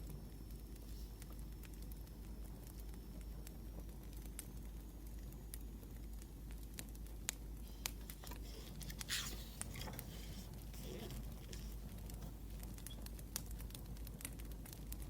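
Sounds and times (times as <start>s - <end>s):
wood fire crackling: 0.0s - 15.0s
scratchy rustle: 7.7s - 13.1s.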